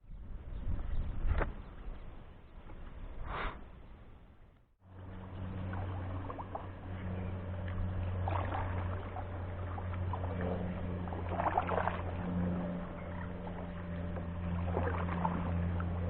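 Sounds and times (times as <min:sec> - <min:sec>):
steady low hum: 0:04.8 - 0:16.0
paddle strokes splashing: 0:04.9 - 0:16.0.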